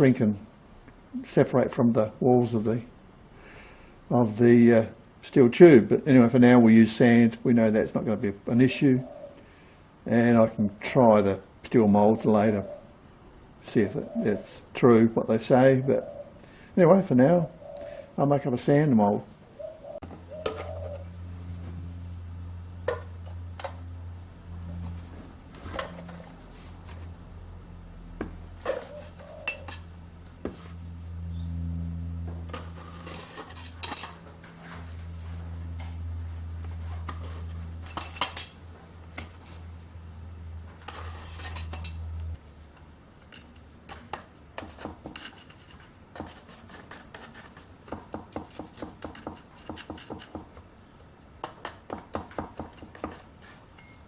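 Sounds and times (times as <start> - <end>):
steady low hum: 0.0 - 47.9
metal clinking and scraping: 28.6 - 30.0, 32.5 - 35.1, 36.9 - 39.6, 40.7 - 42.3.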